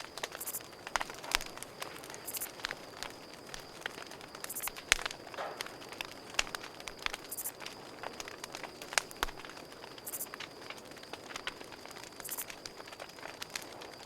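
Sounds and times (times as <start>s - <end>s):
high buzzy insect call: 0.0s - 8.0s, 9.9s - 10.4s, 12.1s - 13.1s
campfire crackling and popping: 0.0s - 14.0s
cricket trill: 0.0s - 14.0s.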